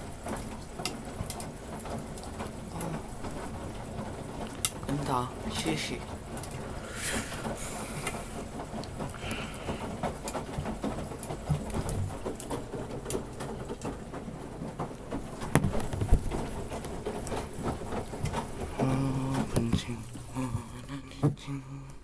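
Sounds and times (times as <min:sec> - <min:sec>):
water splashing in washing machine: 0:00.0 - 0:21.8.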